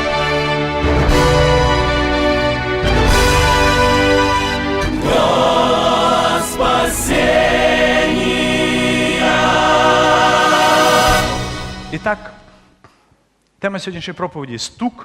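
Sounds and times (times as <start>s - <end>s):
instrumental backing: 0.0s - 12.8s
choir singing with vibrato: 3.1s - 12.6s.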